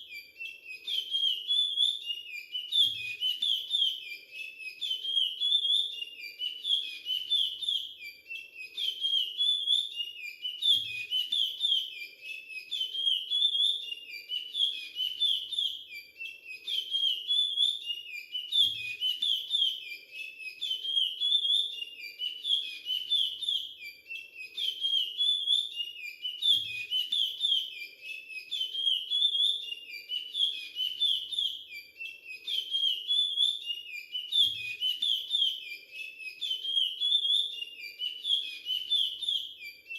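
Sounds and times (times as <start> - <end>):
finch whistling song: 0.0 - 39.9.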